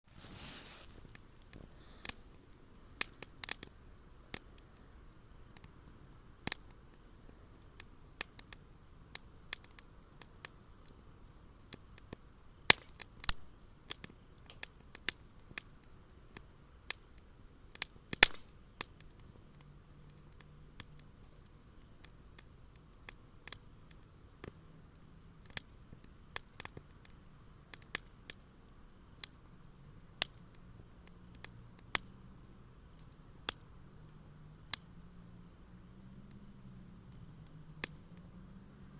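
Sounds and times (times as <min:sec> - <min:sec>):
wood fire crackling and popping: 0:00.1 - 0:38.9.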